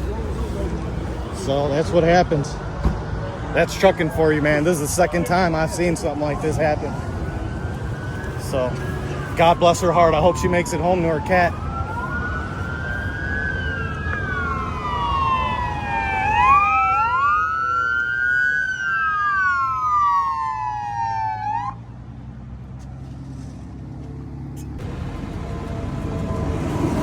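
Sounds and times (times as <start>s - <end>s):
emergency sirens wailing: 0.0s - 22.0s, 24.8s - 27.0s
low engine hum: 19.8s - 27.0s.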